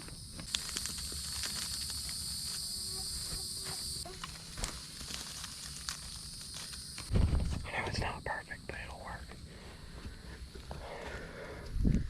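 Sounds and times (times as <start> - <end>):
dry pine straw crackling: 0.0 - 7.6
high-pitched insect chorus: 0.0 - 12.0.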